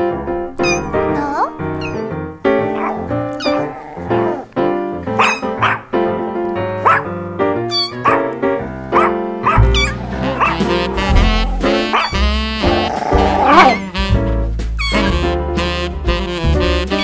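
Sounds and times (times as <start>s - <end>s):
background music with held notes: 0.0s - 17.0s
dog barking in high yips: 5.2s - 5.8s, 6.8s - 7.1s, 7.7s - 8.2s, 9.0s - 10.6s, 11.9s - 12.2s
deep bass notes: 8.4s - 17.0s.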